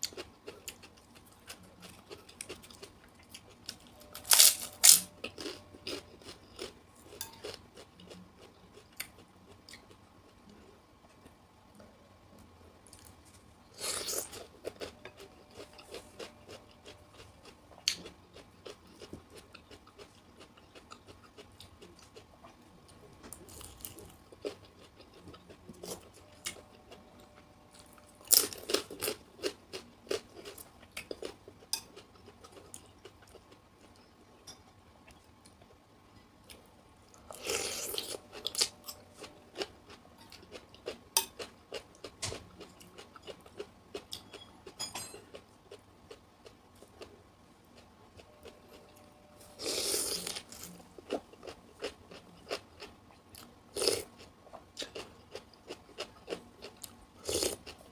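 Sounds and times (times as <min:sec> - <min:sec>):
crunchy chewing of raw vegetables: 0:00.0 - 0:10.0, 0:47.7 - 0:57.9.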